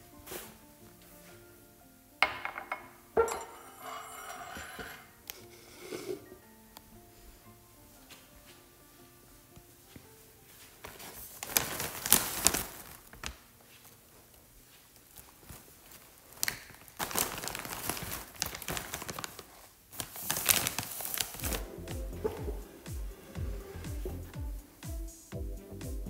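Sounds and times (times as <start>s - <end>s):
plastic chip bag crinkling: 11.2s - 13.3s, 15.2s - 21.6s.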